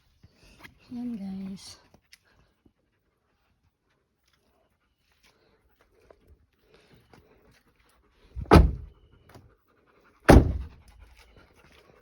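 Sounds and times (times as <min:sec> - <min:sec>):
car doors shutting: 0:08.4 - 0:08.9, 0:10.3 - 0:10.8.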